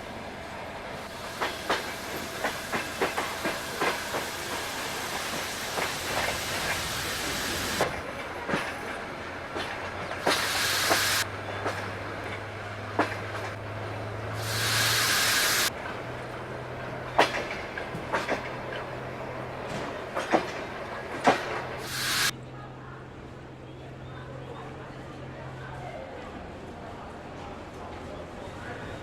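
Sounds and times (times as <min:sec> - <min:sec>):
train hissing: 0:00.0 - 0:08.1, 0:09.2 - 0:11.8, 0:13.0 - 0:15.8, 0:20.2 - 0:22.3.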